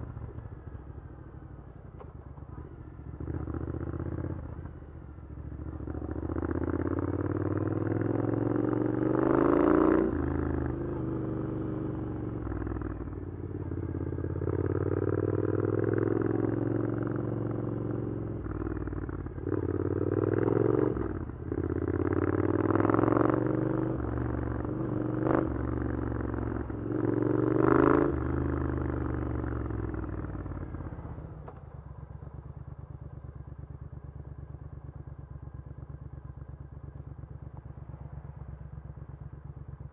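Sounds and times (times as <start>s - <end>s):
motorcycle engine idling: 0.0s - 8.7s, 21.1s - 22.8s, 28.2s - 39.9s
motorcycle engine revving: 2.0s - 39.9s.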